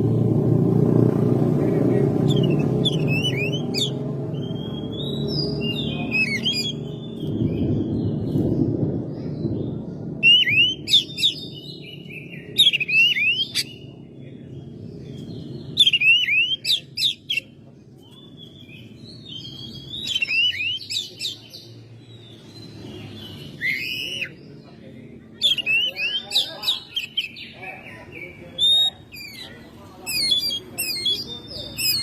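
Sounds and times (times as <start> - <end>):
steady low hum: 0.0 - 20.0
bird singing whistles and chirps: 2.2 - 14.0, 15.2 - 24.6, 25.4 - 32.0.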